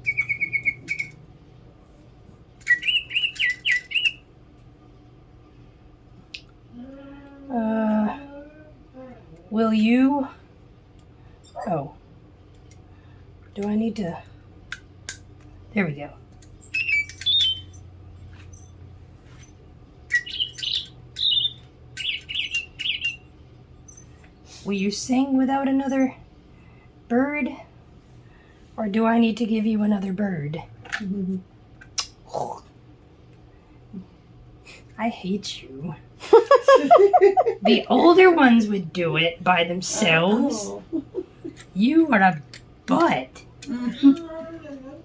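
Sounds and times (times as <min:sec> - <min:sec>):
electronic toy bird chirping: 0:00.0 - 0:01.2, 0:02.6 - 0:04.2, 0:16.6 - 0:17.8, 0:20.1 - 0:23.3.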